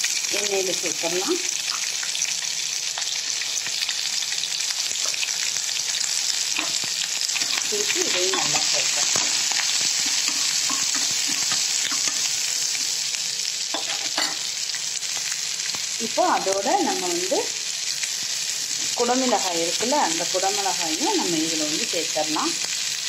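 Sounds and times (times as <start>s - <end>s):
vegetables sizzling in hot oil: 0.0s - 23.0s
spatula scraping a pan: 6.6s - 12.9s.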